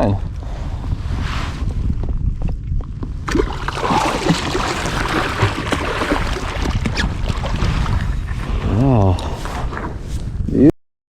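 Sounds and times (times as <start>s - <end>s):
water splashing and sloshing: 3.2s - 10.2s
fish thrashing at surface: 3.3s - 10.0s.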